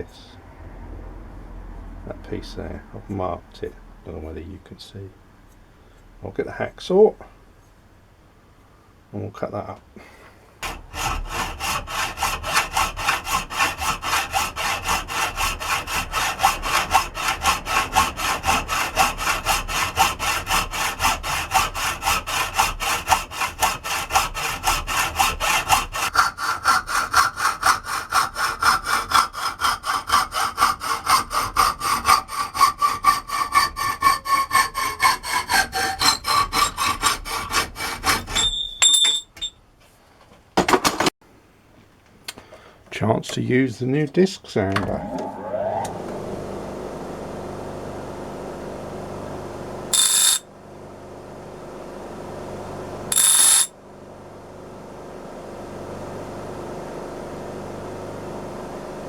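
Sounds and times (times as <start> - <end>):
hacksaw cutting metal: 10.6 - 39.5, 49.9 - 50.5, 53.1 - 53.8.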